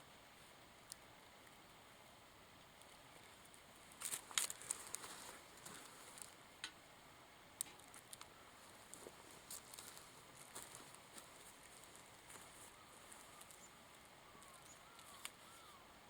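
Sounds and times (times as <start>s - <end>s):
wood fire crackling and popping: 3.5s - 6.8s, 7.6s - 12.5s.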